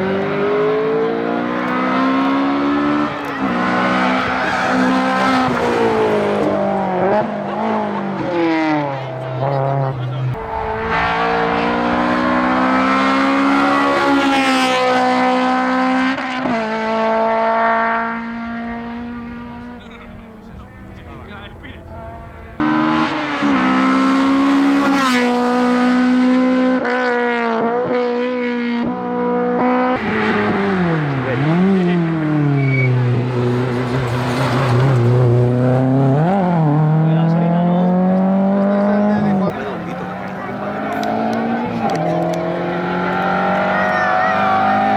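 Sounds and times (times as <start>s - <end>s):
race car engine at full throttle: 0.0s - 44.9s
gear change: 37.8s - 44.9s.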